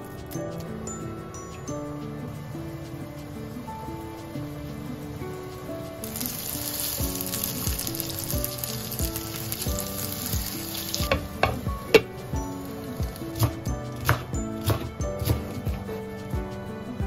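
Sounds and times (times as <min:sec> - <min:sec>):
patties sizzling in oil: 0:06.0 - 0:13.7.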